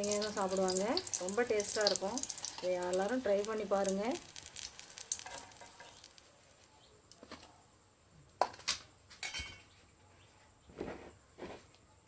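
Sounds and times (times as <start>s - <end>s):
kitchenware clinks and knocks: 8.4s - 9.7s.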